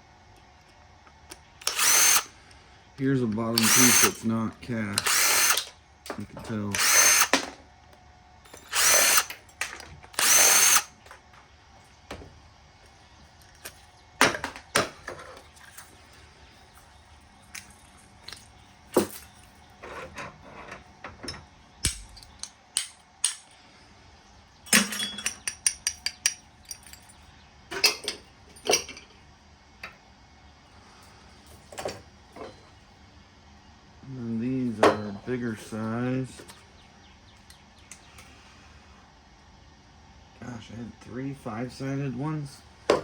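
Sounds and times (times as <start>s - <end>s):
power drill bursts: 1.6s - 2.3s, 3.5s - 4.3s, 4.9s - 5.7s, 6.6s - 7.4s, 8.6s - 9.4s, 10.1s - 11.0s
clicks of parts handled: 21.8s - 23.6s.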